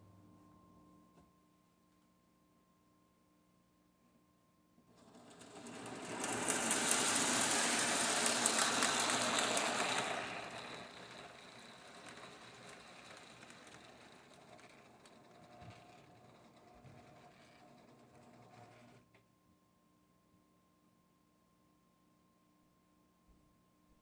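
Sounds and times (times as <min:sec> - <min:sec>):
train wheels clattering on rail: 0:05.0 - 0:18.3.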